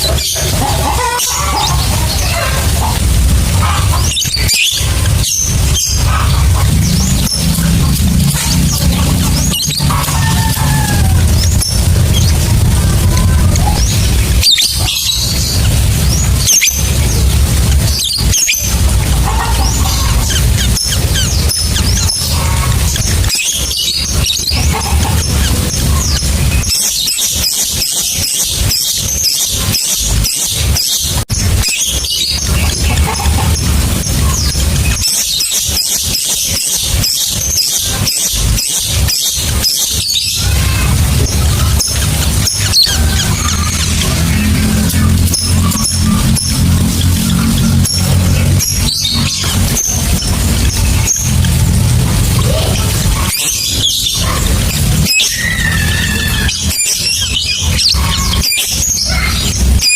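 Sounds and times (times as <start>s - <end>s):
lovebirds chirping: 0.0s - 59.9s
low drone: 0.0s - 59.9s.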